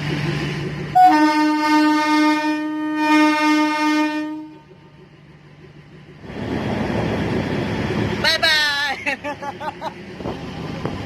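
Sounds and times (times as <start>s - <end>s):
vehicle horn blast: 1.0s - 4.7s.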